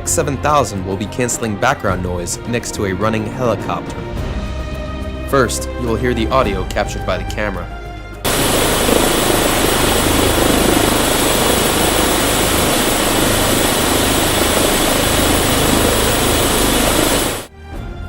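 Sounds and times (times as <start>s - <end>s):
helicopter engine and rotor: 8.2s - 17.5s
thin high whine: 8.3s - 17.5s.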